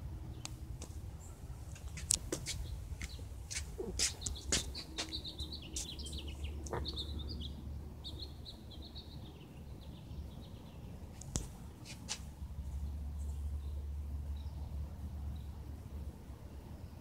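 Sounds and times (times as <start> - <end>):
songbird twittering: 1.9 - 10.8
low steady rumble: 9.8 - 17.0.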